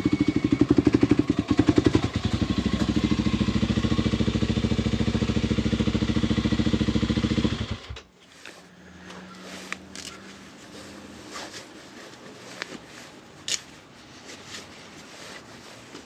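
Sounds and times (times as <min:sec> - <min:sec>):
motorcycle engine idling: 0:00.0 - 0:08.0.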